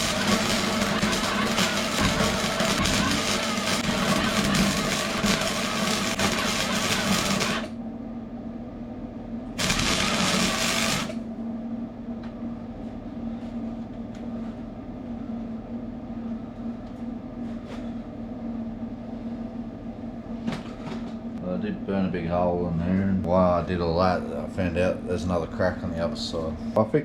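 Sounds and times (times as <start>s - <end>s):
welding arc crackling: 0.0s - 7.7s, 9.6s - 11.2s
steady low hum: 0.0s - 27.0s.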